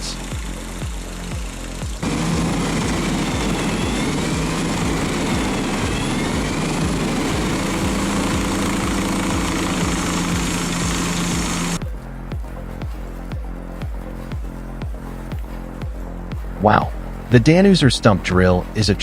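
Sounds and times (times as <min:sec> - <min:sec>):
wood chipper running: 0:00.0 - 0:11.8.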